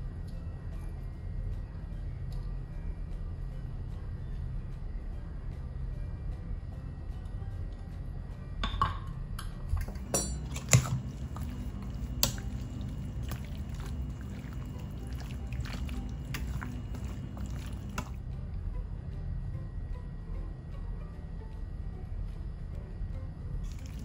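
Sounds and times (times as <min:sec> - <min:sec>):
wet chicken pieces stirred: 0:09.9 - 0:18.2, 0:23.6 - 0:24.0.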